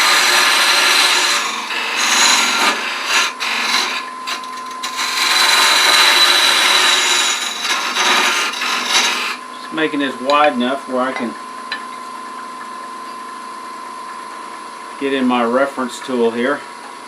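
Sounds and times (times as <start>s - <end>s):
wood lathe cutting scraping hiss: 0.0s - 9.4s
lathe whine: 0.0s - 11.3s.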